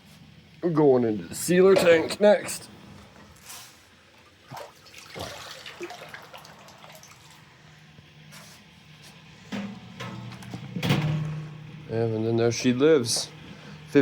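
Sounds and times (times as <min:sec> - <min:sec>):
water dripping and splashing: 0:04.4 - 0:07.5.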